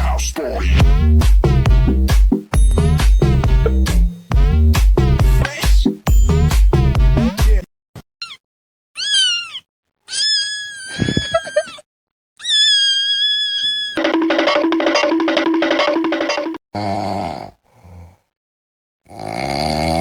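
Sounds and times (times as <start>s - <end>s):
rhythmic pulsing: 0.8s - 5.5s, 14.0s - 16.6s.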